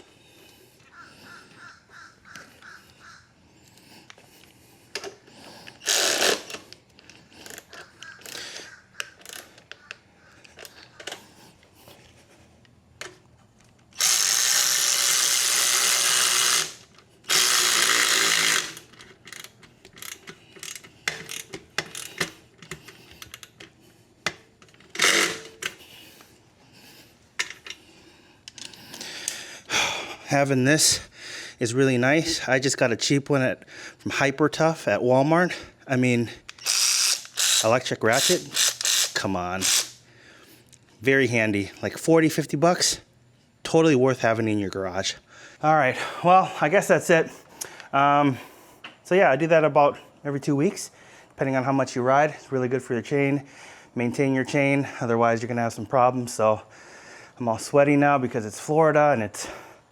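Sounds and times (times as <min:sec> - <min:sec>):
tools clicking and knocking: 0:04.9 - 0:11.3, 0:13.0 - 0:25.8, 0:27.4 - 0:27.8, 0:36.4 - 0:40.0
electric ratchet running: 0:05.8 - 0:06.6, 0:14.0 - 0:22.2, 0:25.0 - 0:25.6, 0:36.5 - 0:40.0.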